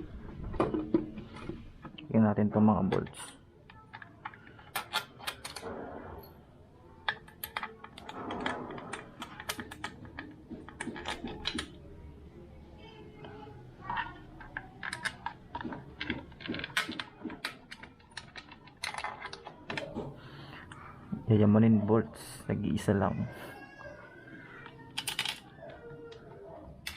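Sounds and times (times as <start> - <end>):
metal bolts and tools clinking: 2.8 - 6.4, 7.0 - 11.8, 13.9 - 20.0, 24.7 - 25.5.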